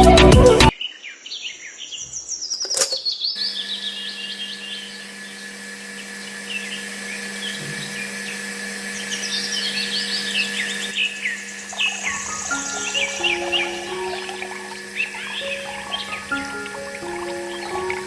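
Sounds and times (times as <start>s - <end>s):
background music: 0.0s - 0.7s, 12.2s - 18.0s
small birds chirping: 0.7s - 18.0s
faint hum: 3.4s - 18.0s.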